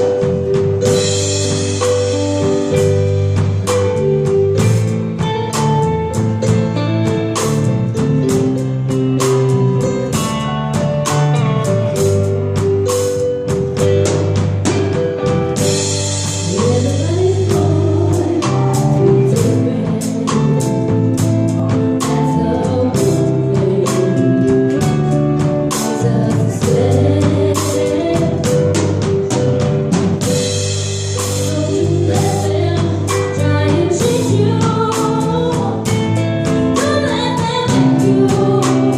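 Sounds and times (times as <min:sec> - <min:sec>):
bass and chords: 0:00.0 - 0:38.9
drum kit beat: 0:00.0 - 0:38.9
person singing: 0:16.4 - 0:25.0, 0:25.7 - 0:28.8, 0:31.5 - 0:38.9.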